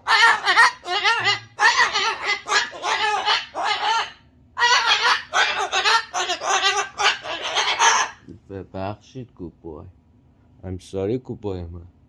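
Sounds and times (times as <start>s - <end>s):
cockatoo harsh calls: 0.0s - 8.3s.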